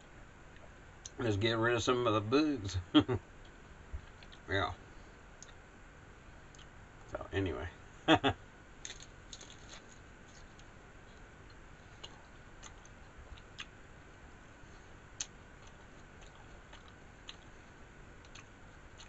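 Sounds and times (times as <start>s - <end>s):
chewing with soft crunches: 3.4s - 4.5s, 5.4s - 5.6s, 6.3s - 7.2s, 8.8s - 19.0s.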